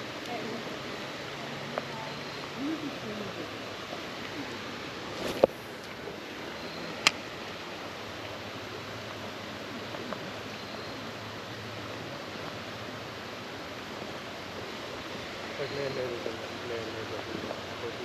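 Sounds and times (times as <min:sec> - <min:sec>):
creek water running: 0:00.0 - 0:18.0.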